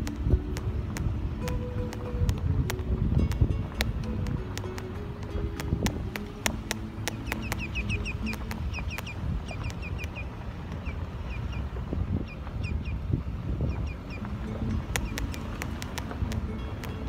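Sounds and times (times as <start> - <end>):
sharp clicks: 0.0 - 10.2, 14.9 - 17.0
wind rumble on microphone: 0.0 - 17.0
bird chirping: 6.2 - 13.0, 13.6 - 17.0.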